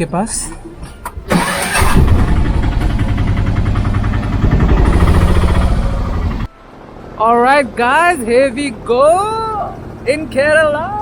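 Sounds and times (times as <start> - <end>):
small engine running: 1.3 - 6.5.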